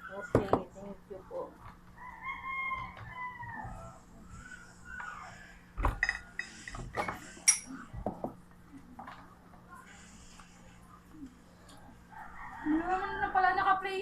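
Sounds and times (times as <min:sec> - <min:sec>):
cutlery clinking on a plate: 0:05.8 - 0:07.8.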